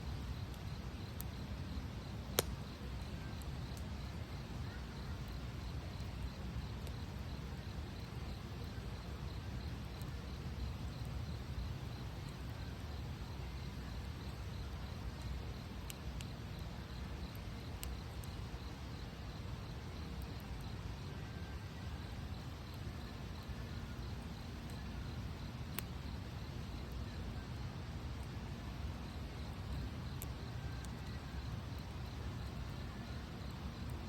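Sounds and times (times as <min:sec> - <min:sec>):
campfire burning: 0:00.0 - 0:34.0
fire crackling: 0:00.0 - 0:34.0.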